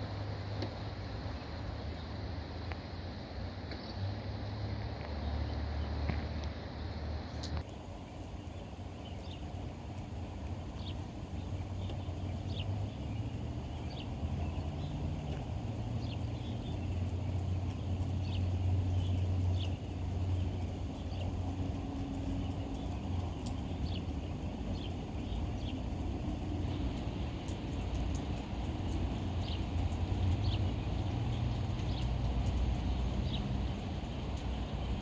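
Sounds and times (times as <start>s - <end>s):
birds chirping: 7.3s - 35.0s.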